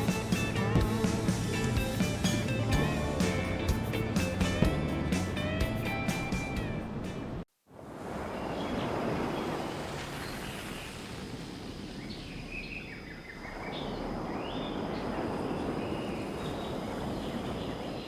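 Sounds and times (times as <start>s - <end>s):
steady rushing noise: 0.0s - 7.4s.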